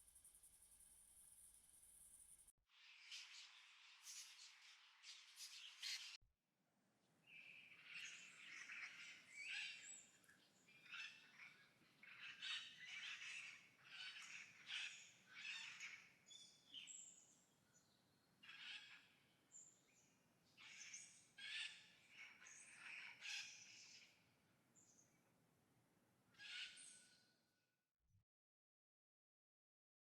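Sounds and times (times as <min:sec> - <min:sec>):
harsh bird chirps and squawks: 0:18.4 - 0:19.0, 0:26.4 - 0:27.1.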